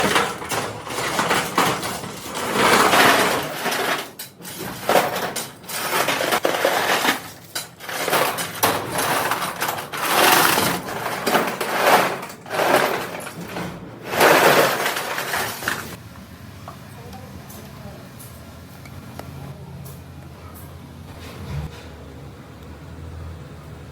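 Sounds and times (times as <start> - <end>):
metal parts and machinery clattering: 0.0 - 16.0.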